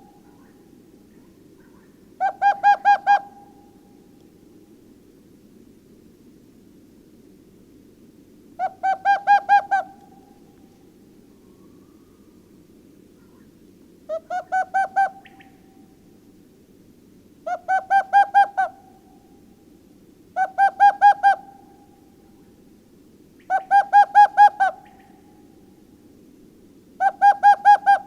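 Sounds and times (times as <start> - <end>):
owl hooting: 1.6 - 3.9, 8.6 - 10.4, 11.4 - 12.4, 14.1 - 16.0, 17.4 - 19.4, 20.4 - 21.9, 23.4 - 25.6, 27.0 - 28.0.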